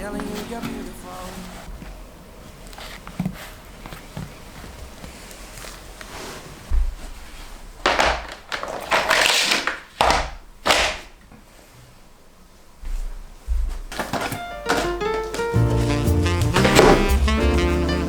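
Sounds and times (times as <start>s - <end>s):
sharp knocks: 14.3s - 17.6s.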